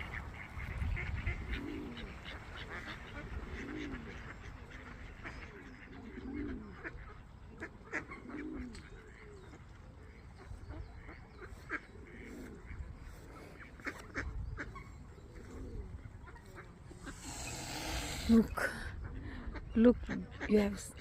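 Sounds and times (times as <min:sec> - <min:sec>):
swans honking: 0:16.2 - 0:18.9.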